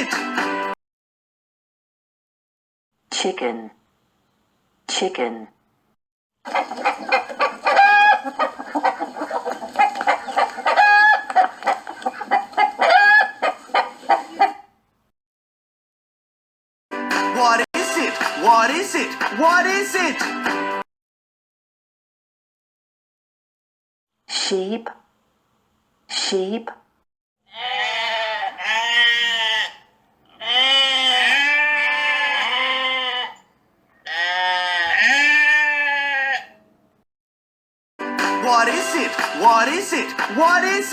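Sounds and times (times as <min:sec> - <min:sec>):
chicken cackling: 0:06.5 - 0:14.7, 0:30.4 - 0:33.4
sheep bleating: 0:27.5 - 0:33.4, 0:34.0 - 0:36.6.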